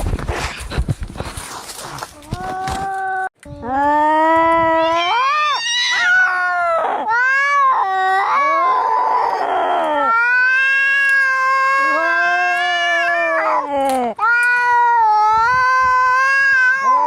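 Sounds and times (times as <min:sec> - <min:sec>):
cats yowling in a fight: 0:04.6 - 0:17.0.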